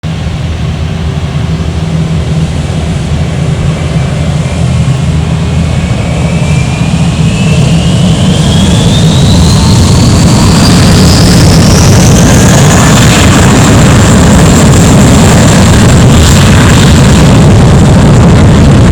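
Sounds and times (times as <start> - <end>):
jet engines spooling up: 0.0 - 18.9.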